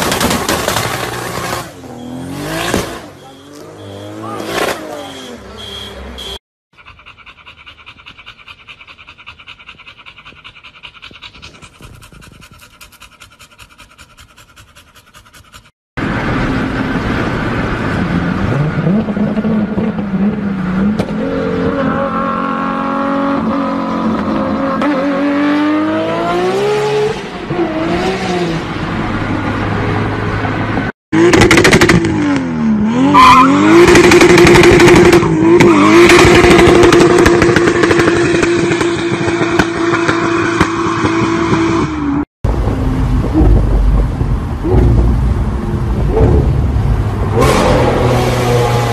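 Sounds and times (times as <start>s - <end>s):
second engine blipping: 1.8s - 6.4s
car engine revving: 30.6s - 48.9s.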